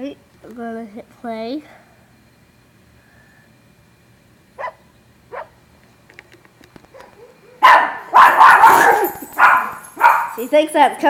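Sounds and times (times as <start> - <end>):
dogs barking: 4.6 - 5.6, 6.9 - 10.5.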